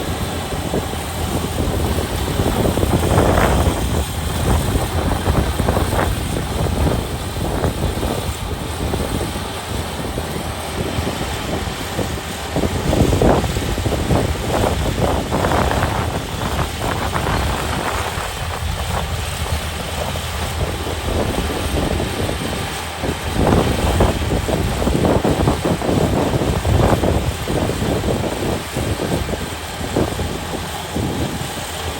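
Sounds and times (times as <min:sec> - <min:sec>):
combine harvester engine drone: 0:00.0 - 0:31.9
gusty rushing: 0:00.0 - 0:31.9.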